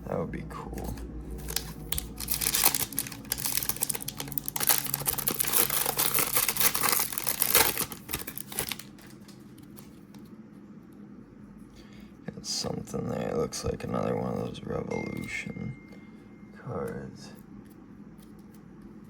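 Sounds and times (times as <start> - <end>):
wrapper tearing and crinkling: 1.3 - 10.3.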